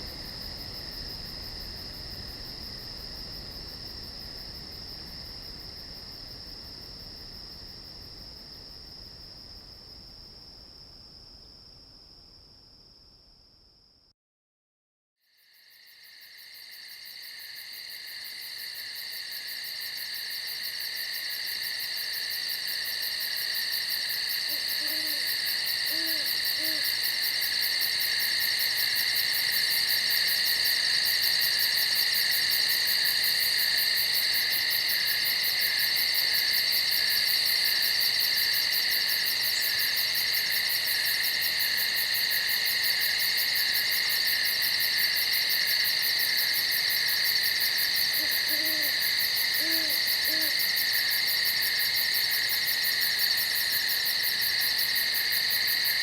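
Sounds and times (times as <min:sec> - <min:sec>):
insect chorus trilling: 0:15.4 - 0:56.0
soft low hoots: 0:24.5 - 0:26.9, 0:48.2 - 0:50.6.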